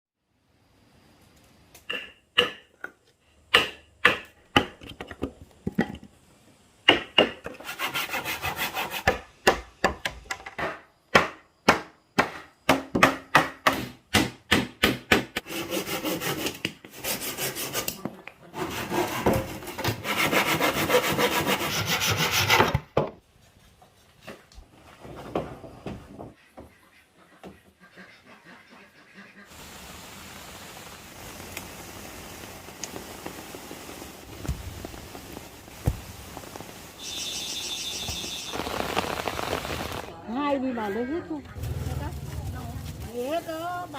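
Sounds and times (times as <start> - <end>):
hand-sawing through wood: 7.5 - 9.2, 15.4 - 22.8.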